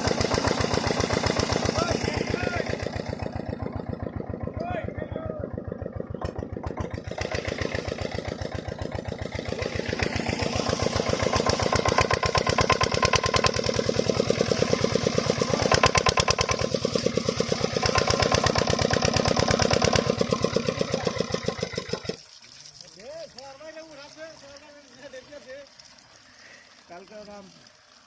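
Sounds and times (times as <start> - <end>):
diesel pump engine knocking: 0.0 - 22.2.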